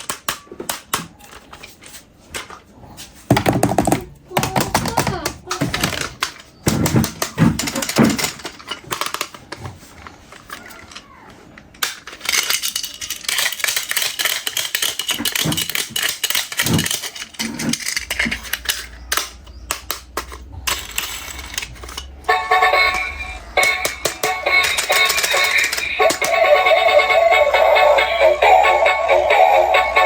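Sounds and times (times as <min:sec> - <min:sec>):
toys clicking and rattling: 0:00.0 - 0:02.7, 0:03.3 - 0:30.0
toy tune playing: 0:22.3 - 0:30.0.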